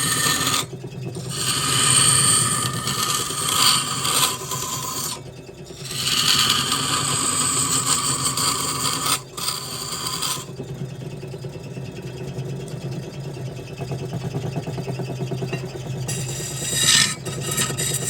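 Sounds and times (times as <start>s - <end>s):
wood lathe humming: 0.0s - 10.5s, 16.1s - 18.0s
tool scraping spinning wood: 0.0s - 10.7s, 15.5s - 18.0s.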